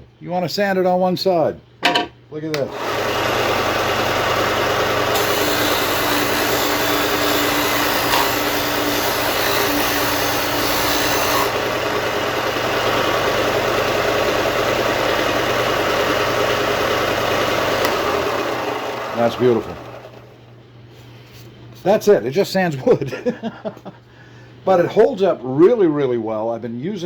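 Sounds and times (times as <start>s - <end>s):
sander grinding wood: 2.7s - 20.3s.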